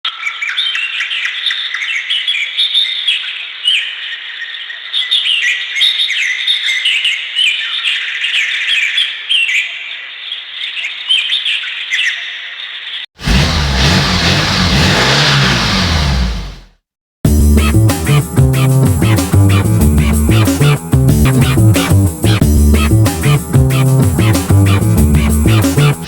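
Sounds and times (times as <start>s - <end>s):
small birds chirping and twittering: 0.1s - 13.1s.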